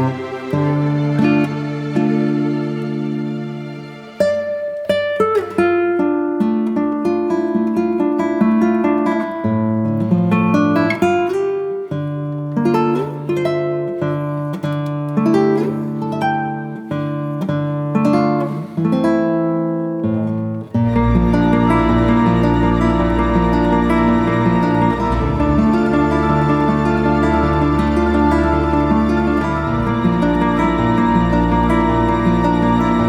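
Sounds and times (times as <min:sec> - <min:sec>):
acoustic guitar plucked notes: 0:00.0 - 0:33.0
sustained bass notes: 0:20.9 - 0:33.0.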